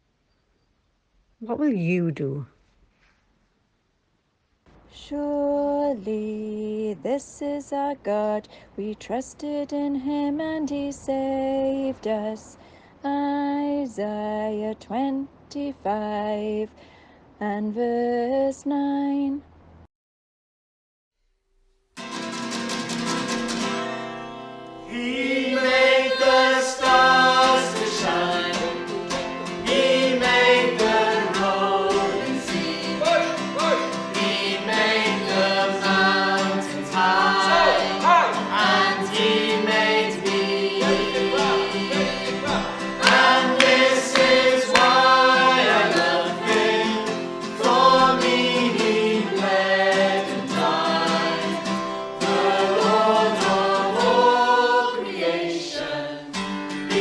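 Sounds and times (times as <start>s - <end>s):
guitar accompaniment: 22.0s - 57.0s
choir singing gospel song: 24.8s - 57.0s.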